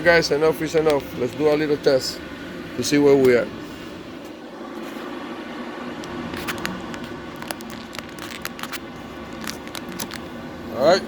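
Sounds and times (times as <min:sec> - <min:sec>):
steady background hum: 0:00.0 - 0:11.0
clicks and taps handling small parts: 0:06.4 - 0:10.2.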